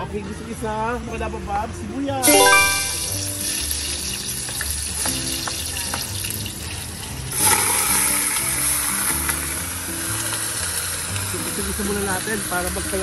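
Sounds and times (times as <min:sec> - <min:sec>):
onion sizzling in hot oil: 0:03.8 - 0:13.0.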